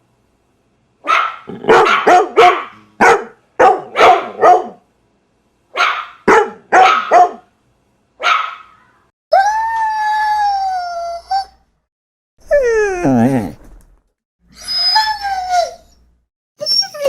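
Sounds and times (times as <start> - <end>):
dog barking: 1.0 - 4.8, 5.7 - 7.5, 8.2 - 8.8.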